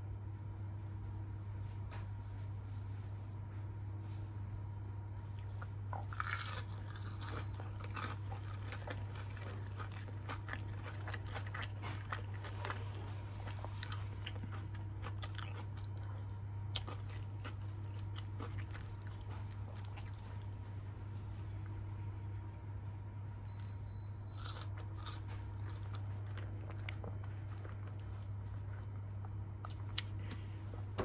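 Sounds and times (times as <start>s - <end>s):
steady low hum: 0.0s - 31.0s
crunching and chewing food: 3.4s - 22.7s, 23.3s - 31.0s.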